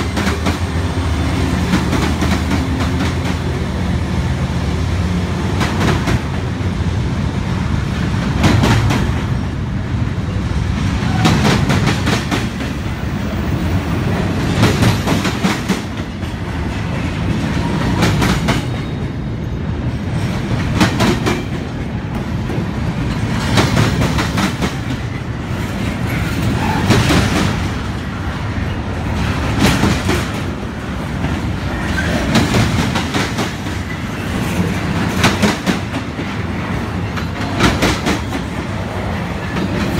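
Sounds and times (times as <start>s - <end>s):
freight train rumbling: 0.0s - 39.9s.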